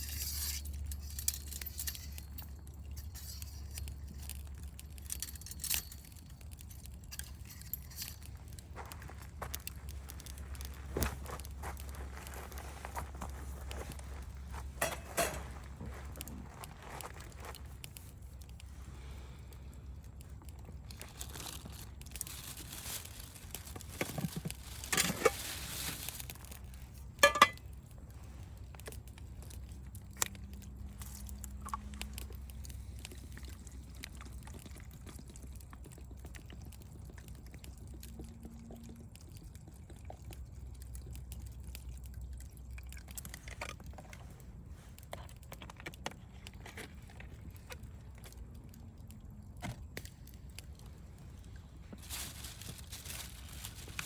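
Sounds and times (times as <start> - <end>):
campfire crackling and popping: 0.0 - 54.0
rustles and knocks: 10.3 - 17.6.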